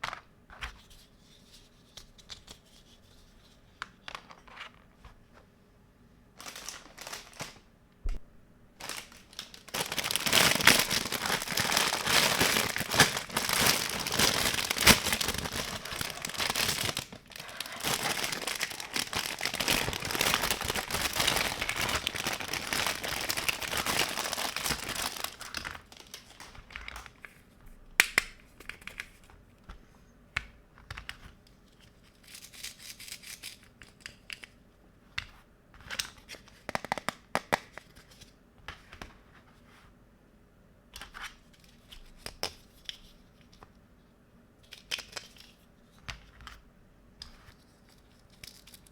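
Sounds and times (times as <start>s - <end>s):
packaging crumpling and crinkling: 6.4s - 7.6s, 8.8s - 27.4s, 47.5s - 48.9s
packaging tearing: 8.8s - 26.7s.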